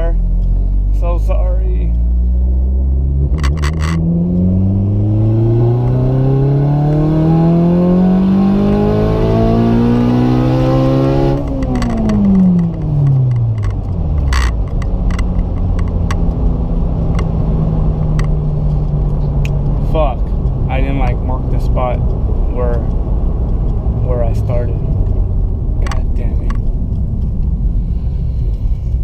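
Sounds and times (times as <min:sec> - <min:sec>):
car engine revving: 0:00.0 - 0:29.0
sharp clicks: 0:11.4 - 0:16.4.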